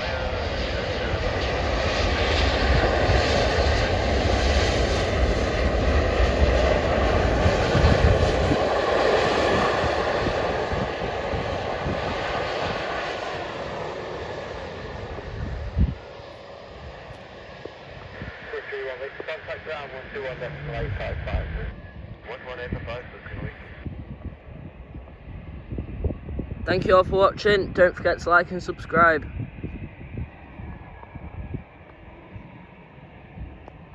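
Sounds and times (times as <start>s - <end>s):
jet engines rumbling: 0.0s - 33.9s.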